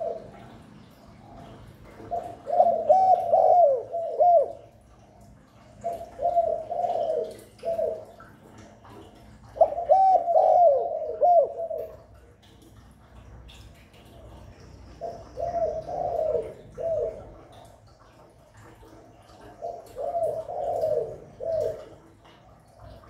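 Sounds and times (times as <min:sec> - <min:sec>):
dove cooing: 0:00.0 - 0:00.7, 0:01.4 - 0:04.9, 0:05.5 - 0:12.2, 0:15.0 - 0:17.7, 0:18.5 - 0:23.0.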